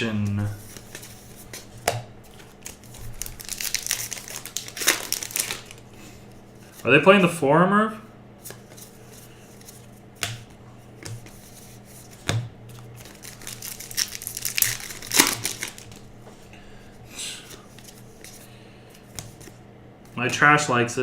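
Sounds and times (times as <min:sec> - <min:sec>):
wrappers crinkling and tearing: 0:02.3 - 0:05.9, 0:13.0 - 0:16.1.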